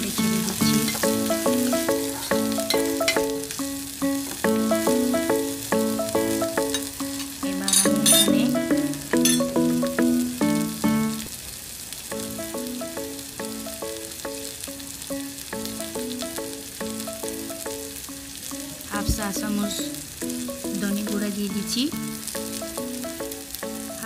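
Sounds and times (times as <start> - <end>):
background music of repeated notes: 0.0 - 11.3, 12.1 - 24.0
onions and chillies sizzling in oil: 0.0 - 24.0.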